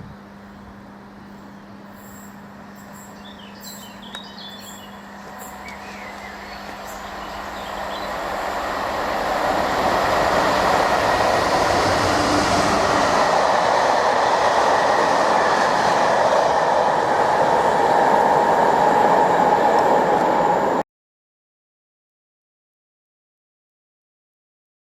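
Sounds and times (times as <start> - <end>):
train running past: 0.0 - 20.8
ringing tone from wheels on rails: 0.4 - 10.8.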